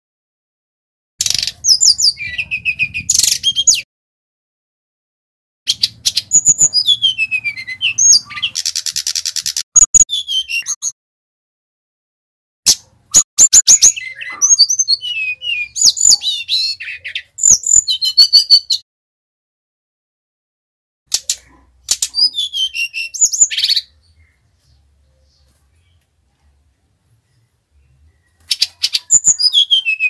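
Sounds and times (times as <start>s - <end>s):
buzzy bird trill: 5.7s - 11.0s, 27.8s - 30.0s.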